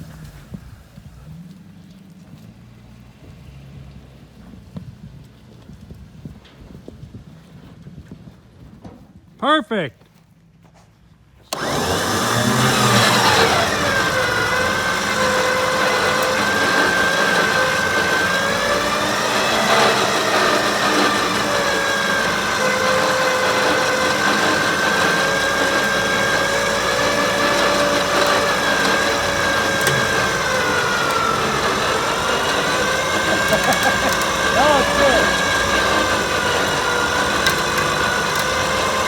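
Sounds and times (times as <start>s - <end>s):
electric winch motor whining: 11.5s - 39.0s.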